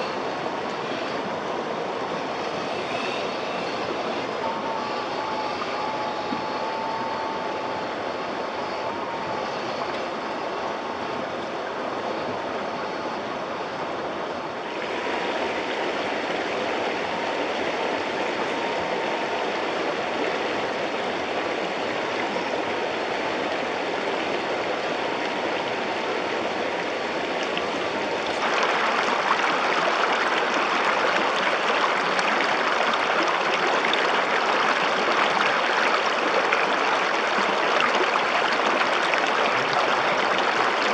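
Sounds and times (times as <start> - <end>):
faint whine of electric motor: 0.0 - 40.9
rushing river water: 0.0 - 40.9.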